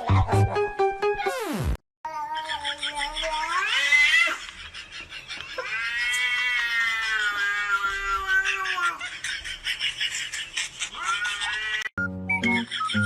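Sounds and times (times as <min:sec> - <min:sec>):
cat meowing: 0:02.1 - 0:04.4, 0:05.6 - 0:09.0.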